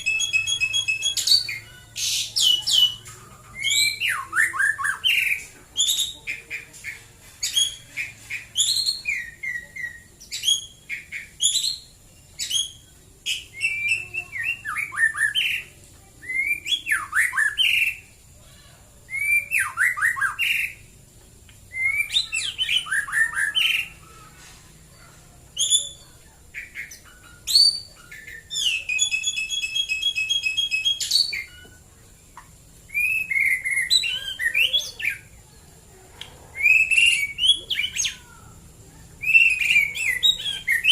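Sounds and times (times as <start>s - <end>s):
bird singing varied whistles: 0.0s - 3.0s, 8.5s - 18.1s, 19.1s - 20.8s, 21.7s - 24.0s, 25.6s - 31.8s, 32.9s - 35.3s, 36.6s - 38.2s, 39.2s - 40.9s.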